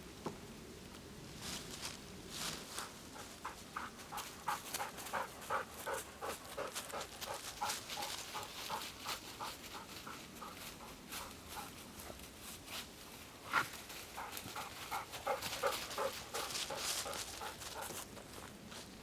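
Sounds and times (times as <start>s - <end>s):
dog panting: 2.8s - 12.2s, 13.5s - 18.1s.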